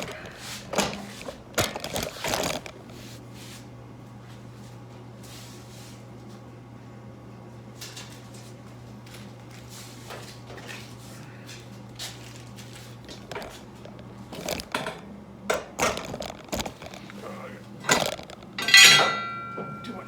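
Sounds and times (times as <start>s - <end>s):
metal parts clicking and clinking: 17.9s - 19.8s.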